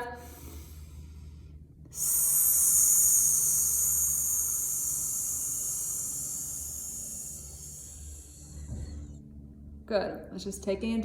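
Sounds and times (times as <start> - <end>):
woman exhaling a hiss: 1.9 - 9.2.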